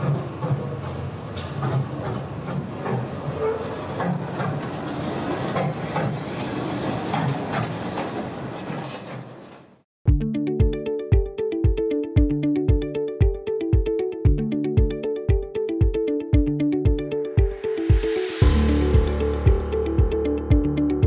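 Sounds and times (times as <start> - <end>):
locomotive rumbling on rails: 0.0 - 9.7
rail clicks and clanks: 0.0 - 9.8
music with strong beat: 10.1 - 21.0.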